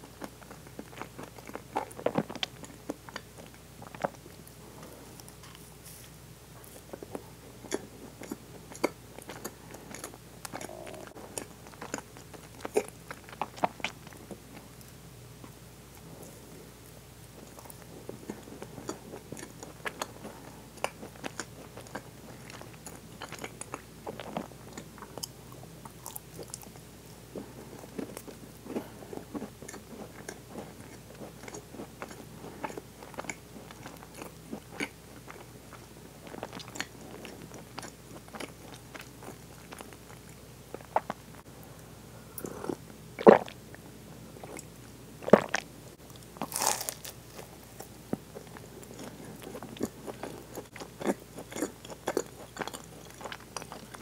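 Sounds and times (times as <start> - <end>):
wet chewing mouth clicks: 48.4 - 54.0.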